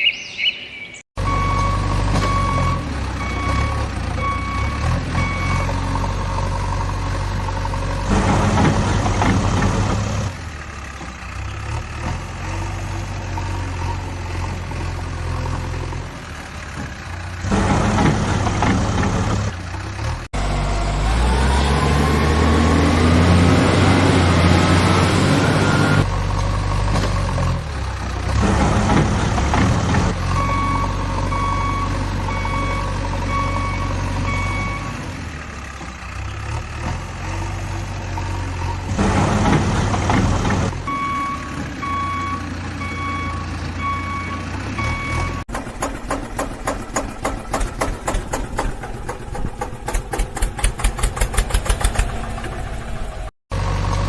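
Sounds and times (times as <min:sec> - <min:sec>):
reversing alarm beeps: 0:00.0 - 0:05.8, 0:25.4 - 0:26.1, 0:30.3 - 0:35.0, 0:40.9 - 0:45.4
truck engine revving: 0:01.2 - 0:54.0.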